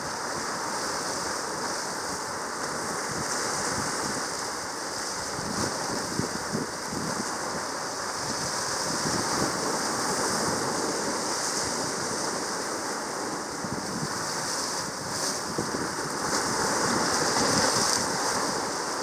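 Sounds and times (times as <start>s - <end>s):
sea water rushing: 0.0s - 19.0s.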